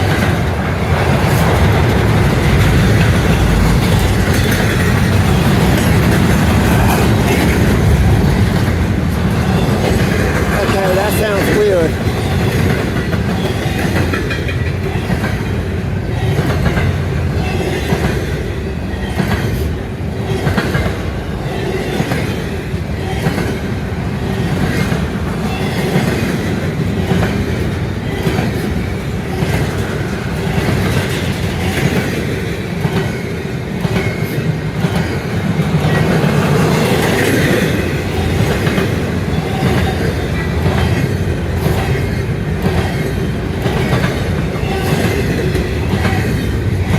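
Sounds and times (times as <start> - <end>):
wheels clacking over rail joints: 0.0 - 18.4
freight train rumbling past: 0.0 - 46.9.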